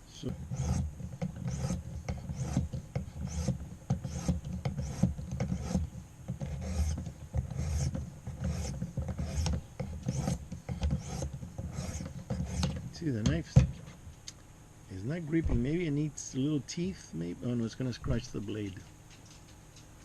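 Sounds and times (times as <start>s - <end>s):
knife blade rasping on sharpener: 0.5s - 12.8s.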